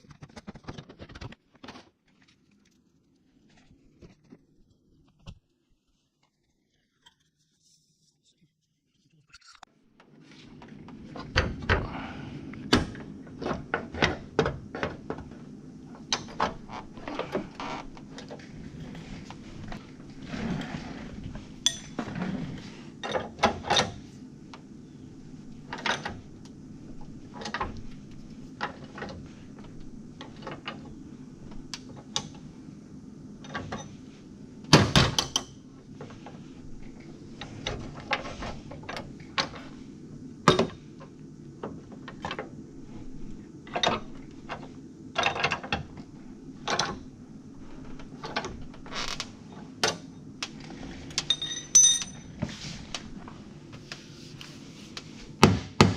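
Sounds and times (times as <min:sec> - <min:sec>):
steady low hum: 0:02.1 - 0:55.9
tools and parts being handled: 0:21.6 - 0:24.1, 0:47.7 - 0:53.4.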